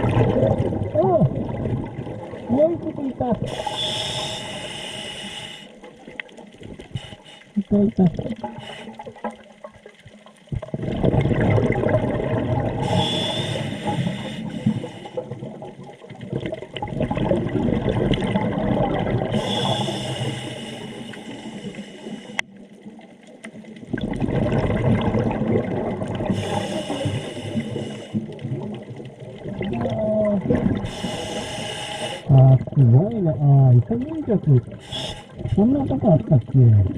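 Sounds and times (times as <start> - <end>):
exhaled bubbles rushing: 0.0 - 4.3, 7.6 - 20.3, 22.6 - 31.5, 32.2 - 36.9
regulator hissing inhale: 3.5 - 5.8, 6.9 - 7.6, 8.6 - 9.0, 12.8 - 15.2, 19.3 - 22.4, 26.3 - 28.2, 30.8 - 32.3, 34.8 - 35.6.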